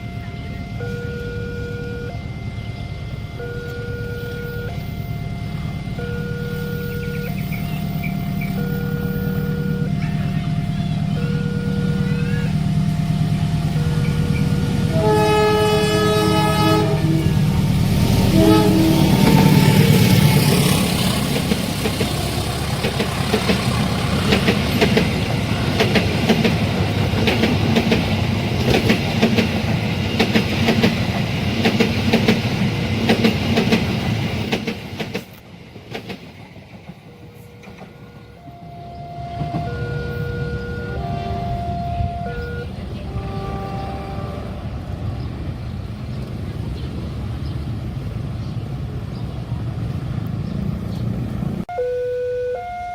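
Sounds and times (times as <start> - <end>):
train horn blast: 0.0 - 21.5, 37.1 - 45.1
two-tone crossing alarm: 0.0 - 21.6, 37.2 - 44.6, 51.7 - 52.9
low engine rumble: 0.0 - 35.2
wagons clattering over rail joints: 20.5 - 35.4.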